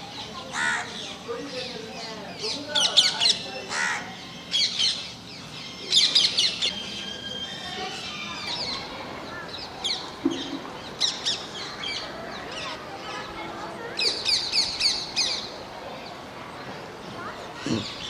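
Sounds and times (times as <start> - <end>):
parrots chirping shrilly: 2.8 - 8.8.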